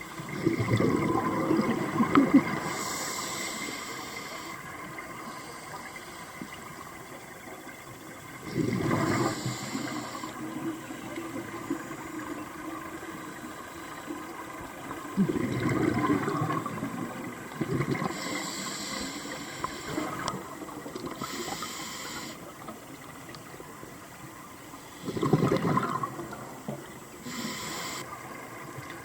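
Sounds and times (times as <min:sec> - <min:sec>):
bubbly rumbling exhalations: 0:00.3 - 0:02.8, 0:15.1 - 0:18.2, 0:25.0 - 0:26.4
regulator hissing inhalations: 0:02.6 - 0:04.6, 0:09.2 - 0:10.4, 0:18.1 - 0:20.2, 0:21.2 - 0:22.4, 0:27.2 - 0:28.1.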